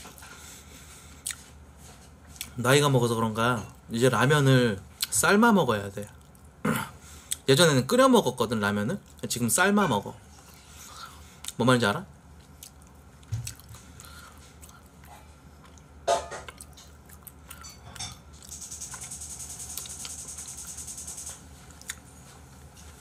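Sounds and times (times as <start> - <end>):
person chewing: 1.2 - 1.6, 12.4 - 18.6, 19.7 - 20.2, 21.7 - 22.1
pulsing high hiss: 18.5 - 21.4.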